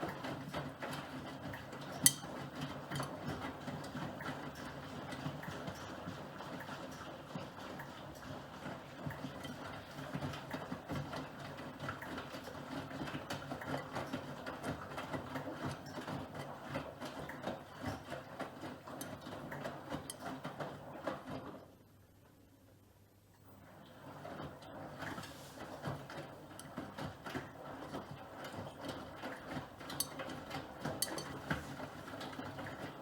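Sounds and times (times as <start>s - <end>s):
washing machine motor hum: 0.0s - 33.0s
laundry tumbling and clattering: 8.3s - 21.7s, 23.6s - 33.0s.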